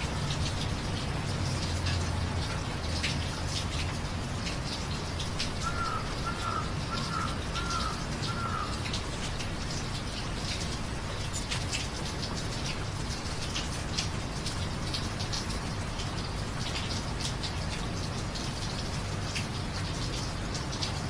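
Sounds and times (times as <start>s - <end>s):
drops and drips landing close: 0.0s - 21.0s
steady rain: 0.0s - 21.0s
bird calling: 5.6s - 8.8s.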